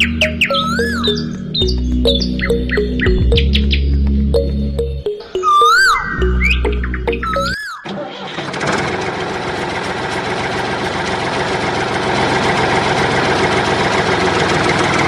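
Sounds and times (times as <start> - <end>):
tractor engine idling: 8.3 - 15.0.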